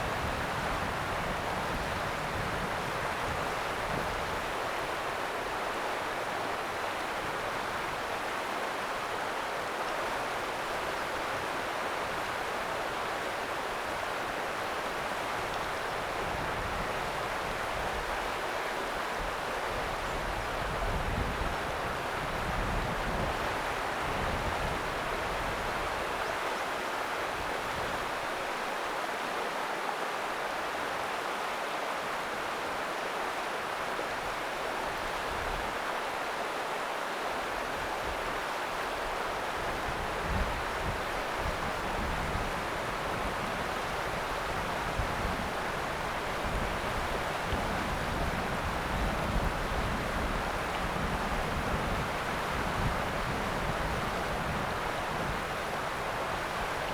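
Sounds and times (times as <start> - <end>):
river water rushing over rocks: 24.8 - 56.9.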